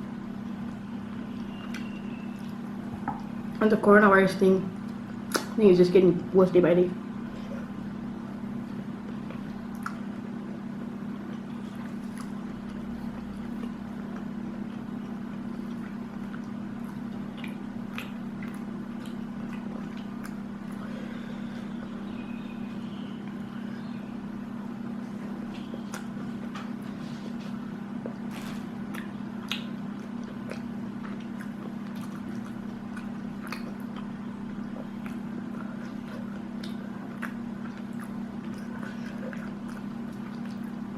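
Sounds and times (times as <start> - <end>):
steady low hum: 0.0 - 40.9
chewing: 8.6 - 10.3, 11.2 - 21.9, 25.0 - 40.9.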